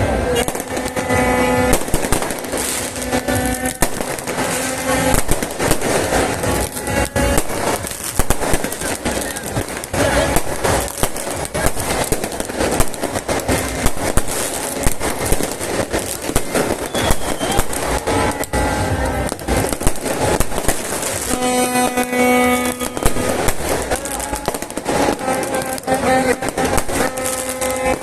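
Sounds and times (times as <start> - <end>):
loud horn-like tone: 0.0 - 8.1, 16.7 - 20.5, 21.2 - 28.0
fireworks crackling and popping: 0.0 - 28.0.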